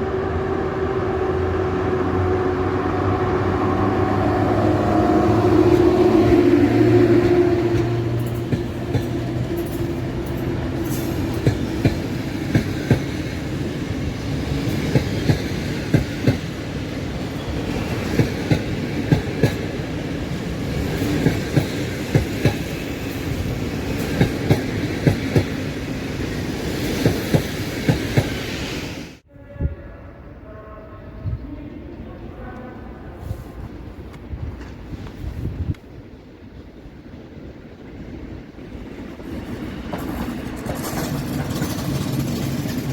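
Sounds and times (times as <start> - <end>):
train rumble: 0.0 - 42.9
train wheels clicking over rail joints: 5.7 - 16.7, 17.3 - 25.7, 39.1 - 42.9.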